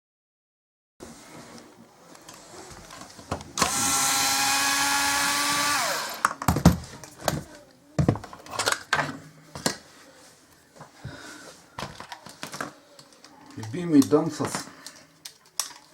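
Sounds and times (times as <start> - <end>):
electric power tool motor: 3.6 - 6.3
knocks and clatters of objects: 6.2 - 9.9, 10.8 - 15.9.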